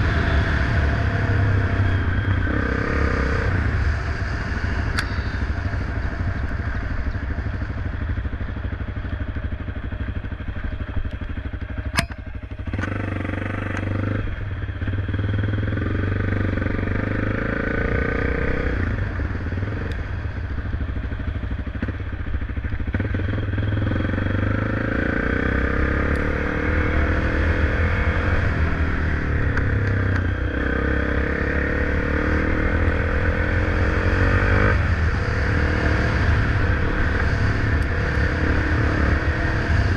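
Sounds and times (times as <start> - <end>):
motorcycle engine running: 0.0 - 39.9
sharp click: 11.9 - 13.0.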